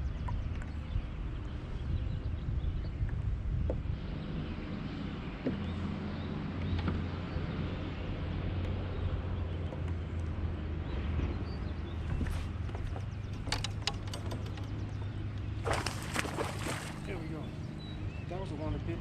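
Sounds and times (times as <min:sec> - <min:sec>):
wind noise on microphone: 0:00.0 - 0:05.4
low hum: 0:00.0 - 0:19.0.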